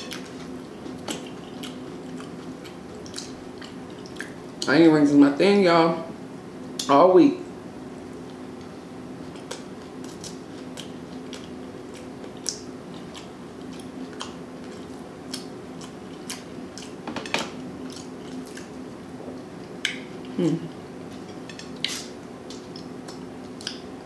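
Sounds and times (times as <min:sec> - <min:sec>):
faint steady hum: 0:00.0 - 0:24.0
chewing with wet mouth clicks: 0:00.1 - 0:04.7, 0:09.3 - 0:17.0, 0:17.8 - 0:18.8, 0:21.2 - 0:23.9.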